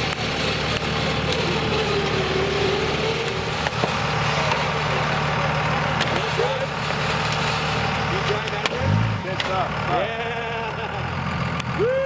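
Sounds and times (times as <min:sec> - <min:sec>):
wavering whine: 0:00.0 - 0:06.7
vehicle engine running: 0:00.0 - 0:12.0.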